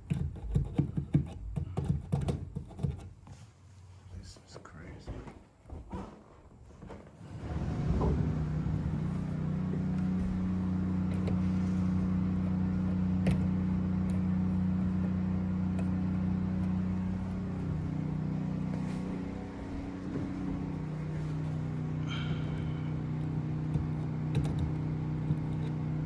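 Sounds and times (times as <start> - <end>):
motor humming: 7.2 - 26.0.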